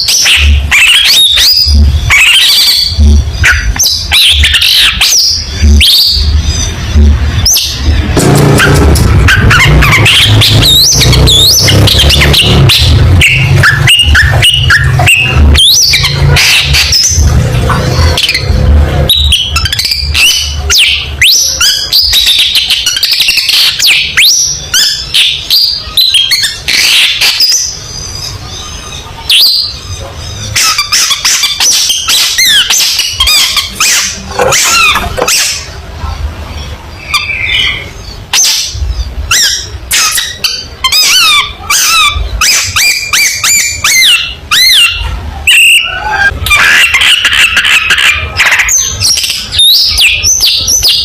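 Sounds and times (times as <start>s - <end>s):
shrike singing chirps and rasps: 0.0s - 35.8s
low rumble: 5.4s - 14.4s.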